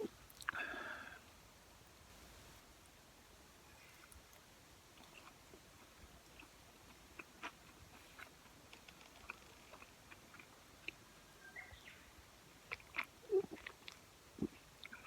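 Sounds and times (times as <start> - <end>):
chewing with mouth clicks: 0.3 - 0.6, 3.9 - 11.0, 12.6 - 15.0.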